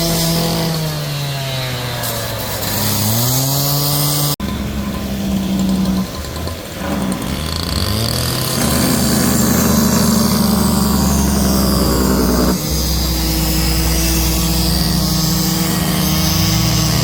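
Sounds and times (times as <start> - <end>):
engine running: 1.8 - 17.0
low steady engine hum: 4.4 - 17.0.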